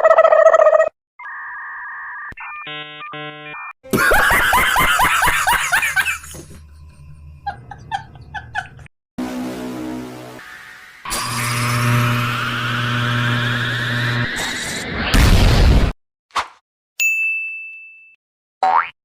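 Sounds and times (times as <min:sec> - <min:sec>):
electronic beeps: 0:01.2 - 0:03.8
steady buzz: 0:09.2 - 0:14.3.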